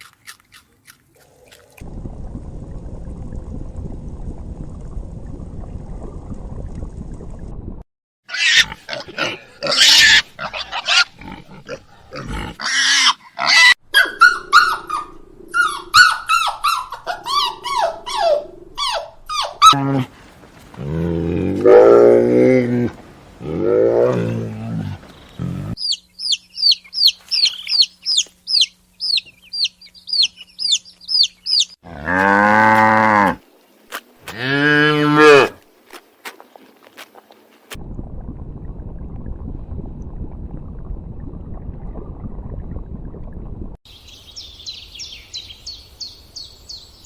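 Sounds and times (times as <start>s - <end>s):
pig grunting: 8.4s - 13.6s, 19.7s - 25.8s.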